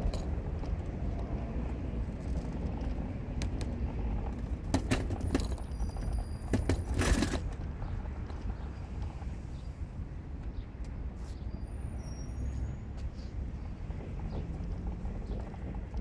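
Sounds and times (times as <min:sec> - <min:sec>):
car engine and road rumble: 0:00.0 - 0:16.0
short knocks and rattles: 0:04.2 - 0:07.9.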